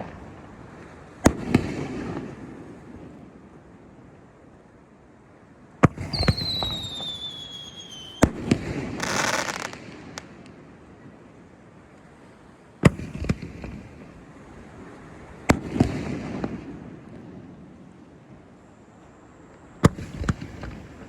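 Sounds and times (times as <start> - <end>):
fireworks banging: 5.9 - 10.4
falling firework whistle: 6.0 - 10.2
short firework hiss: 6.0 - 10.3.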